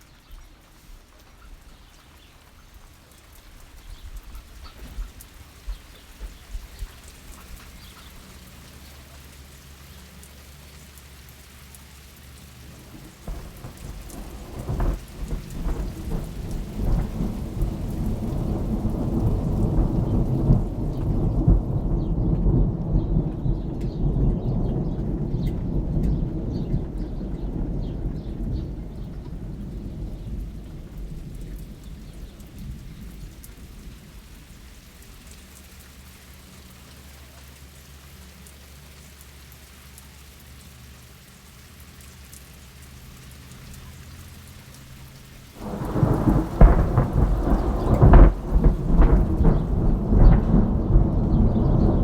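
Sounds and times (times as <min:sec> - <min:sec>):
rain falling: 0:00.0 - 0:52.0
low thunder rumble: 0:12.6 - 0:35.4, 0:45.5 - 0:52.0.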